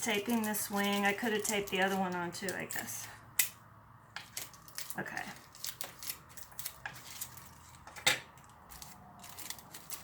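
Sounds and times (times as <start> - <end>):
foil and tape crackling: 0.0 - 3.2, 4.2 - 10.0.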